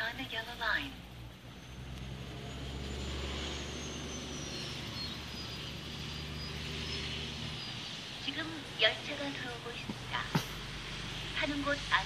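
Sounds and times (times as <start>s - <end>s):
diesel train engine drone: 0.0s - 12.0s
thin high whine: 0.0s - 12.0s.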